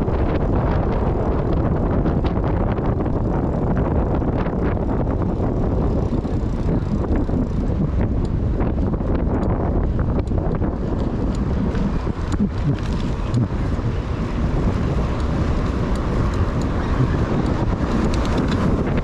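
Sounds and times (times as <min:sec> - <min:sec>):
wind rumbling on microphone: 0:00.0 - 0:19.0
faint clicks: 0:17.4 - 0:19.0.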